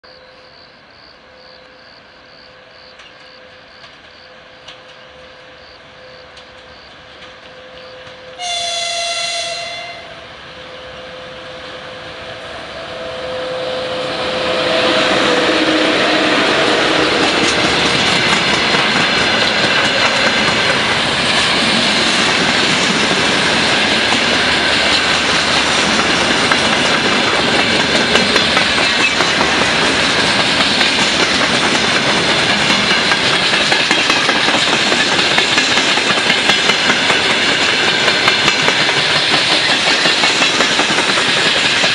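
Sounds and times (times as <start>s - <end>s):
freight train rolling past: 0.1s - 41.9s
wheels clacking over rail joints: 6.1s - 8.6s, 14.4s - 41.9s
locomotive horn blast: 8.3s - 17.4s.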